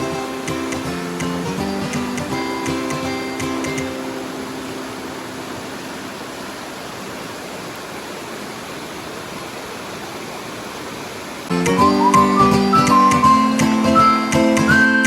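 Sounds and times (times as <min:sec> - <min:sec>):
guitar music: 0:00.0 - 0:05.4, 0:11.5 - 0:15.0
steady rushing noise: 0:00.0 - 0:11.8.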